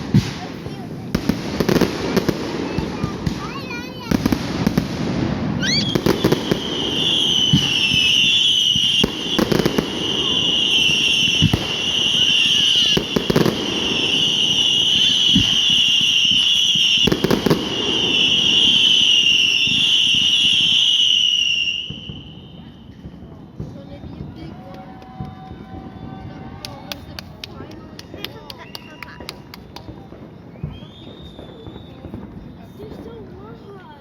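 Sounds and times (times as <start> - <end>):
fireworks bangs: 0.0 - 34.0
high whistle: 5.6 - 17.2, 17.8 - 23.5, 28.5 - 32.2.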